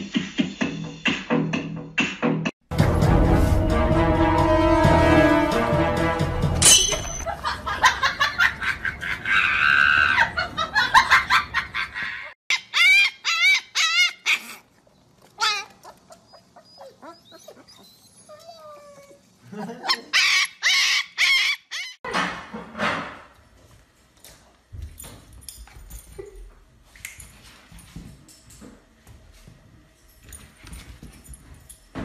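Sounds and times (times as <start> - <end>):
background music: 0.0 - 7.2
puppy howling: 15.4 - 19.2.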